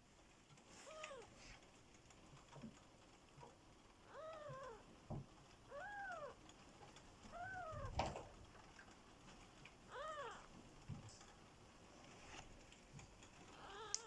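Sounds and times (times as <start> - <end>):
kitten mewing: 4.1 - 4.8, 5.7 - 6.4, 7.3 - 8.0, 9.9 - 10.6, 13.5 - 14.0.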